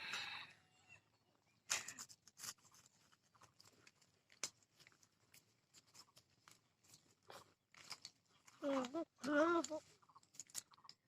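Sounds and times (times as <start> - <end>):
biscuits crunching: 1.6 - 11.0
faint chewing: 1.6 - 11.0.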